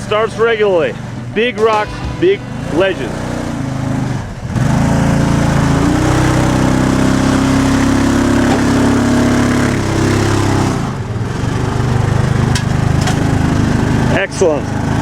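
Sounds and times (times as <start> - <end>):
utility vehicle engine revving: 2.6 - 14.1.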